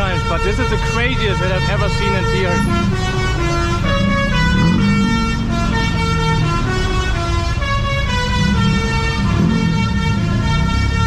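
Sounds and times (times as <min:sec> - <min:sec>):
engine and traffic rumble: 0:00.0 - 0:11.0
musical bus horn playing tune: 0:00.0 - 0:11.0.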